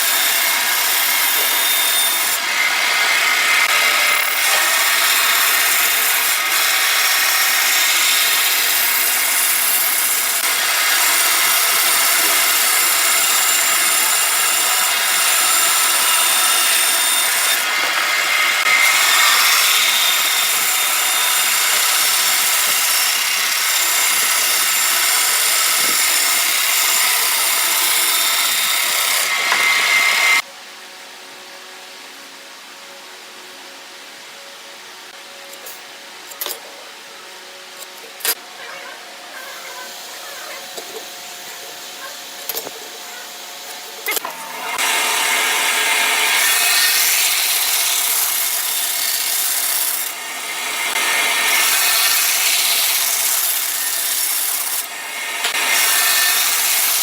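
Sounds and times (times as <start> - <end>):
lathe tool rasping wood: 0.0 - 30.4, 44.6 - 57.0.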